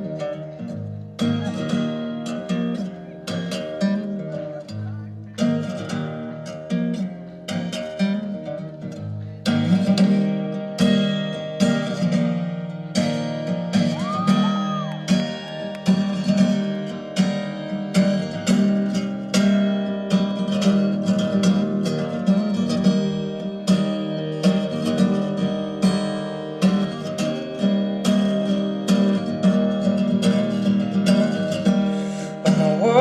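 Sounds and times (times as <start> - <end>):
acoustic guitar strumming chords: 0.0 - 33.0.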